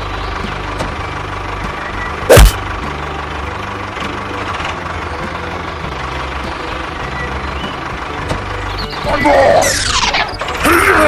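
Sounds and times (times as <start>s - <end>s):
engine-like drone: 0.0s - 11.0s
loud short sound dropping in pitch: 2.3s - 2.6s.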